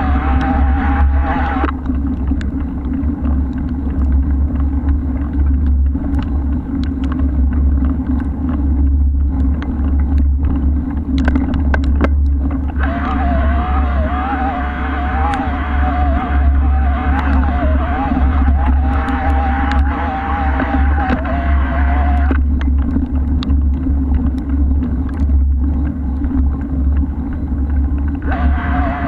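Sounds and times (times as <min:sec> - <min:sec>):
wind buffeting microphone: 0:00.0 - 0:29.0
light clicks and ticks: 0:01.6 - 0:12.9, 0:22.2 - 0:28.3
wavering high-pitched whine: 0:12.8 - 0:22.4, 0:28.2 - 0:29.0.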